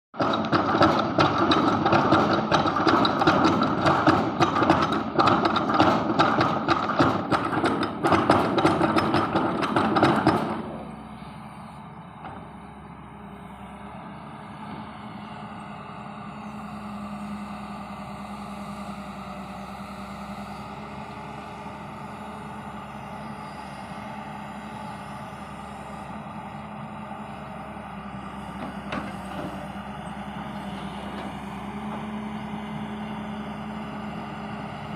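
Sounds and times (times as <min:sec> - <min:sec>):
excavator clattering: 0:00.2 - 0:11.2, 0:12.1 - 0:12.9, 0:27.3 - 0:34.9
excavator engine running: 0:00.2 - 0:34.9.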